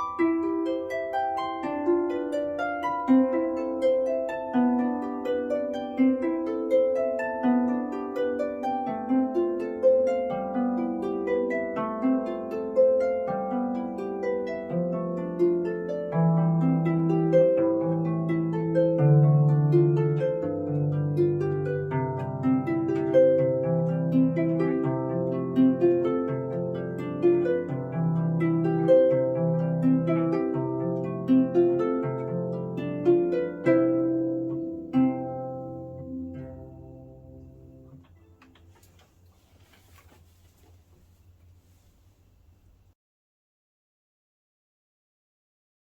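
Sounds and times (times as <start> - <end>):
harp playing a tune: 0.0 - 40.6.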